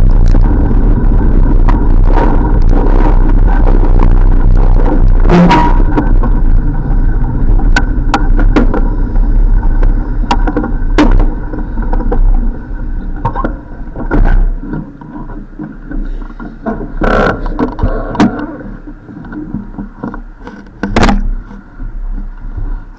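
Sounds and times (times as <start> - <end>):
wind rumble on microphone: 0.0 - 22.9
bicycle clicks and knocks: 7.6 - 12.6.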